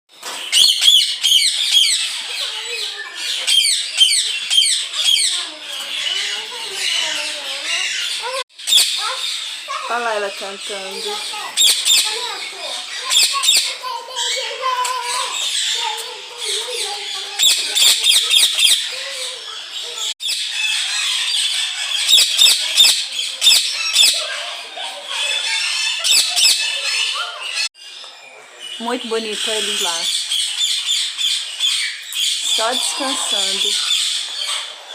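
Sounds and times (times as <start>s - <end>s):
songbirds chirping and singing: 0.2s - 34.9s
sharp downward-sweeping bird calls: 20.2s - 24.4s.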